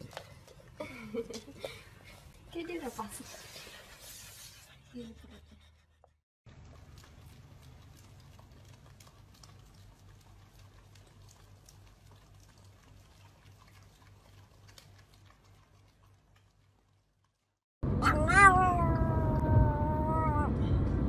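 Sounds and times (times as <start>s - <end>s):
dogs licking wet clicks: 6.5s - 17.5s.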